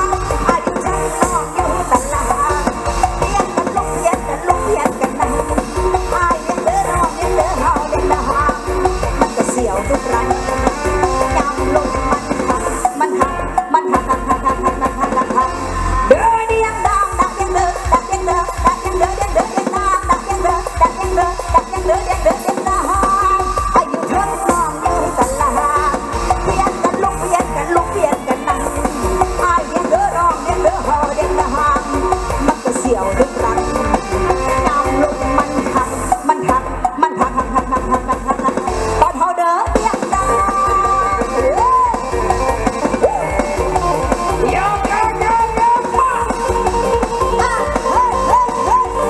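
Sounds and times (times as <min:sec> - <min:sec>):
band music through loud pa: 0:00.0 - 0:49.0.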